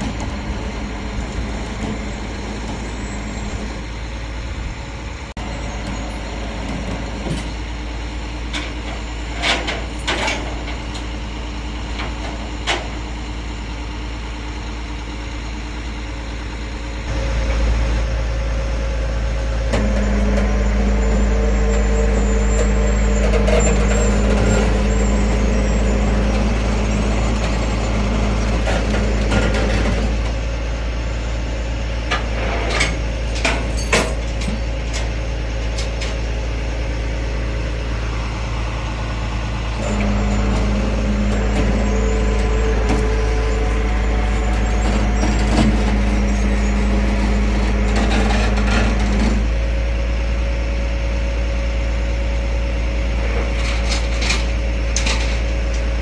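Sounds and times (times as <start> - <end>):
truck engine humming: 0.0 - 56.0.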